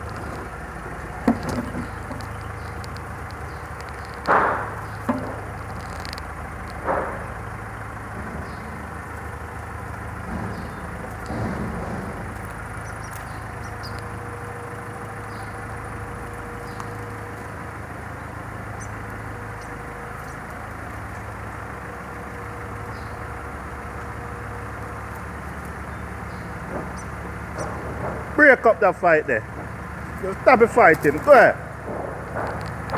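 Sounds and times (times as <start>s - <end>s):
low engine hum: 0.0s - 32.9s
brief knocks: 4.2s - 6.0s.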